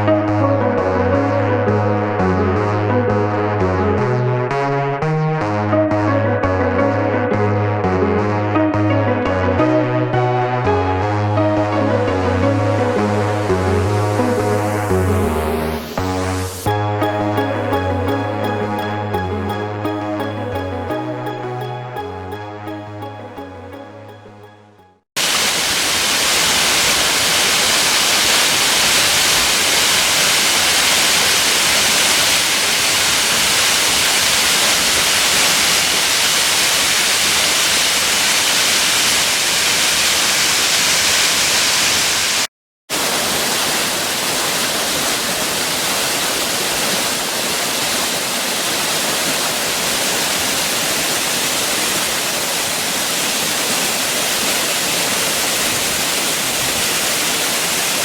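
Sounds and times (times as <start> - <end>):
running water rushing: 25.2 - 58.0.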